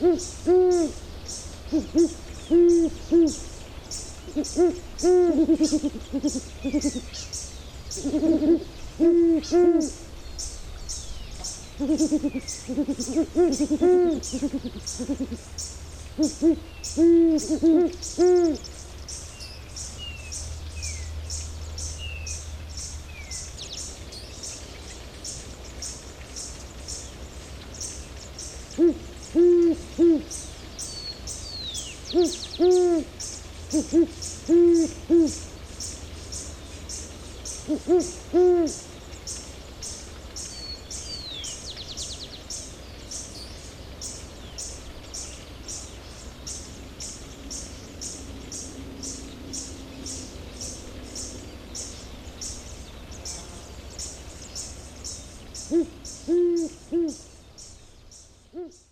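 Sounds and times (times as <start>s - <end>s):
owl hooting: 0.0s - 1.0s, 1.7s - 3.5s, 4.3s - 7.1s, 8.0s - 10.0s, 11.8s - 15.4s, 16.2s - 18.7s, 28.8s - 30.4s, 32.1s - 33.1s, 33.7s - 35.4s, 37.6s - 38.9s, 55.6s - 57.3s, 58.5s - 58.9s.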